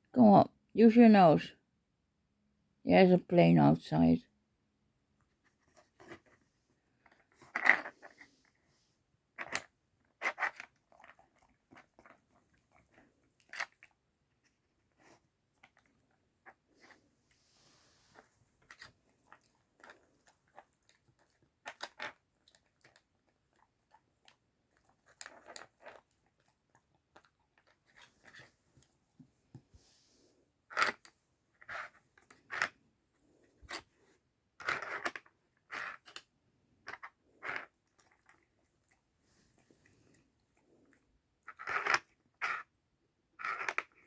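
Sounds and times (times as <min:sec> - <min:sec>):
dog crunching and chewing treats: 0:09.4 - 0:14.0, 0:18.6 - 0:28.5, 0:36.8 - 0:39.0.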